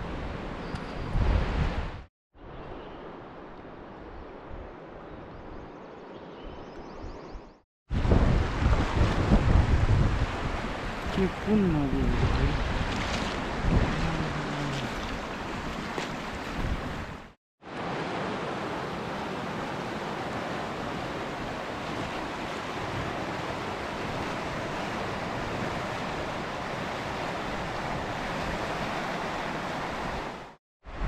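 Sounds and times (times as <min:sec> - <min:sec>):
river water rushing: 0:10.2 - 0:31.0.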